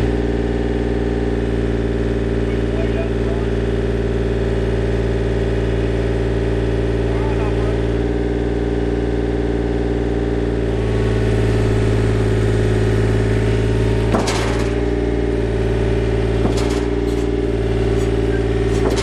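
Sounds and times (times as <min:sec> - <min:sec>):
excavator diesel engine running: 0:00.0 - 0:19.0
sharp knocks from machine: 0:14.0 - 0:15.0, 0:16.3 - 0:19.0.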